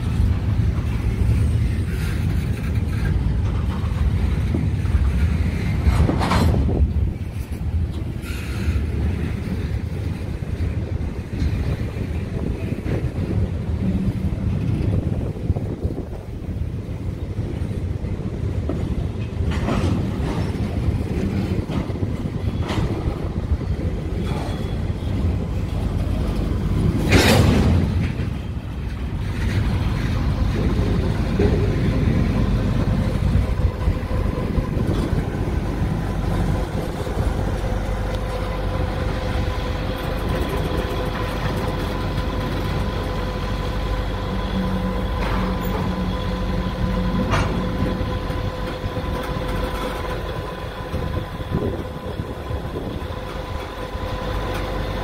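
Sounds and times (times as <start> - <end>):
train rumbling past: 0.0 - 55.0
wheels clicking over rail joints: 0.0 - 55.0
loud rush of noise: 20.2 - 55.0.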